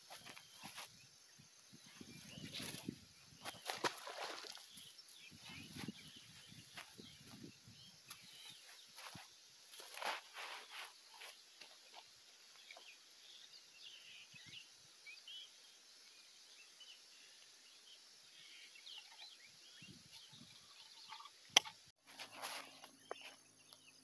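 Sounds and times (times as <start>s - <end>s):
faint bird chirps: 0.0s - 24.0s
steady high hiss: 0.0s - 24.0s.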